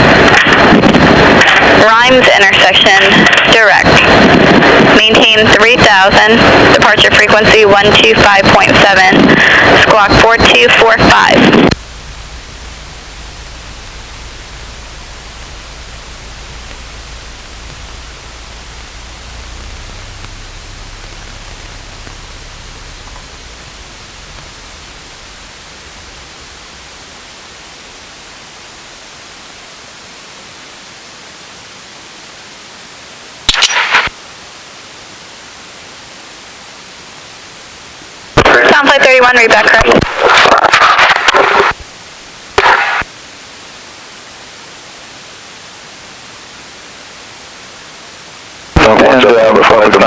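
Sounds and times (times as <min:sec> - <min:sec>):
burst of radio noise: 0:00.0 - 0:29.5, 0:33.5 - 0:34.2, 0:38.4 - 0:43.1, 0:48.8 - 0:50.0
faint low rumble: 0:00.0 - 0:30.4
radio static hiss: 0:00.0 - 0:50.0.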